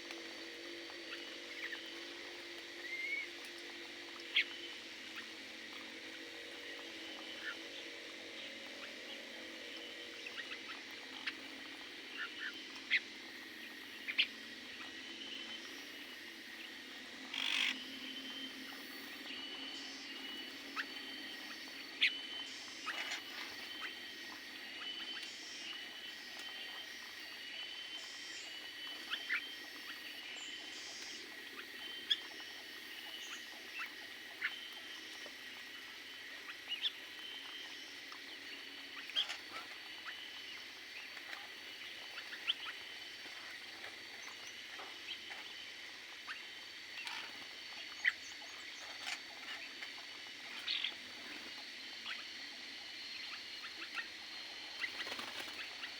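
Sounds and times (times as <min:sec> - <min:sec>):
faint steady high whine: 0:00.0 - 0:55.9
small birds chirping: 0:36.0 - 0:55.9.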